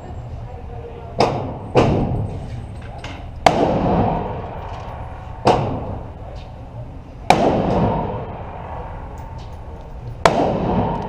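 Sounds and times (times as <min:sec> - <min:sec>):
gunshots with echo: 0:03.4 - 0:04.7, 0:05.4 - 0:06.2, 0:07.3 - 0:11.0.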